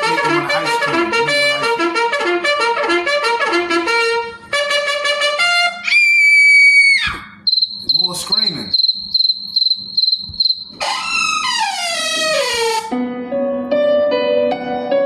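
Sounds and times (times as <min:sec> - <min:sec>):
high electronic tone: 0:00.0 - 0:01.9, 0:07.4 - 0:12.3
crickets chirping: 0:07.4 - 0:10.8.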